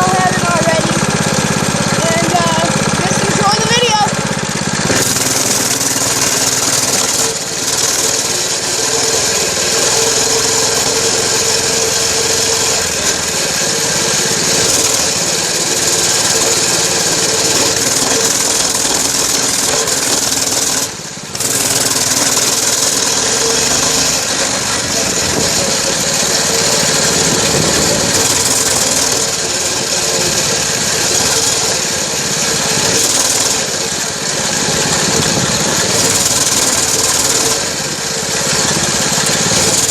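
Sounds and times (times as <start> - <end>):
dirt bike engine running: 0.0 - 39.9
wind noise on microphone: 27.1 - 28.5, 35.1 - 36.0.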